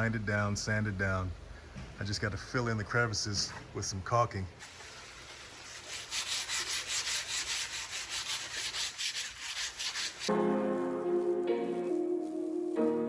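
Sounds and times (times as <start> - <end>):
sandpaper rubbing on wood: 4.7 - 10.3.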